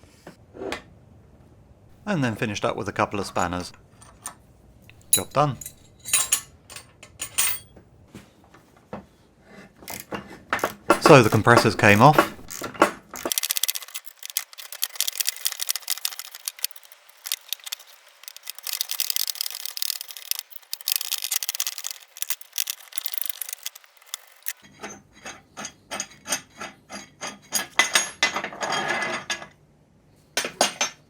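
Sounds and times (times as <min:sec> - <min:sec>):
metal clinks and knocks: 0:04.0 - 0:07.8
metallic clicking and rasping tools: 0:04.9 - 0:07.6, 0:09.9 - 0:24.6.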